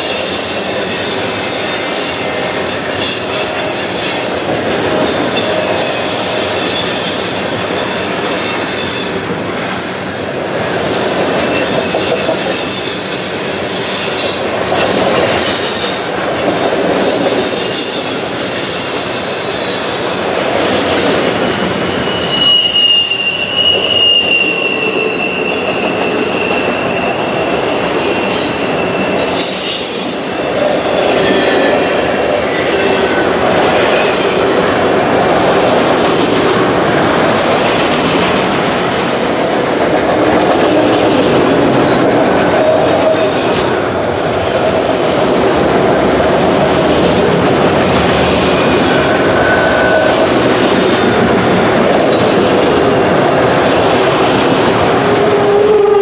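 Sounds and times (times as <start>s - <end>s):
train wheel squeal: 0.0s - 35.6s, 39.9s - 56.0s.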